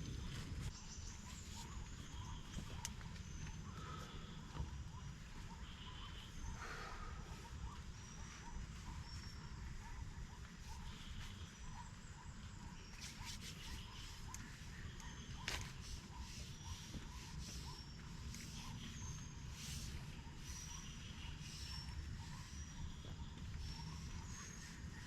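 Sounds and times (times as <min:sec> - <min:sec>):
steady low rumble: 0:00.0 - 0:13.1.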